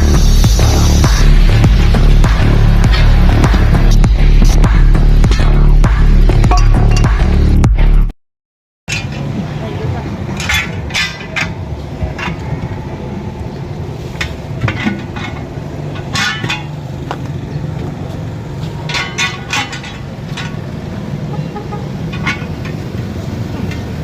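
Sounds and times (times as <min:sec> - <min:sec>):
metal tools clinking: 0:10.3 - 0:12.5, 0:14.6 - 0:16.9, 0:18.6 - 0:20.9, 0:22.0 - 0:22.9.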